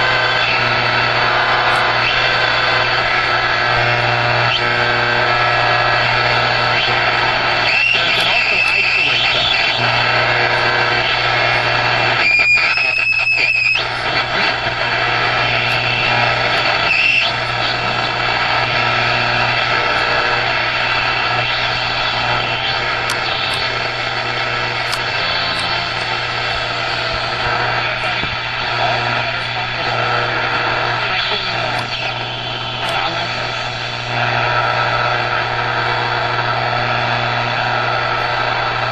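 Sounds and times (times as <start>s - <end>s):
high radio whistles: 0.0s - 38.9s
radio static hiss: 0.0s - 38.9s.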